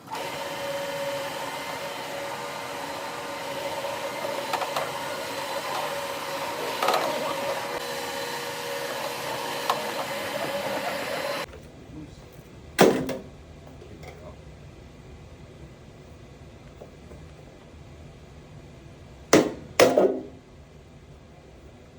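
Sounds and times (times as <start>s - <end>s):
carpet machine humming: 0.0s - 12.8s.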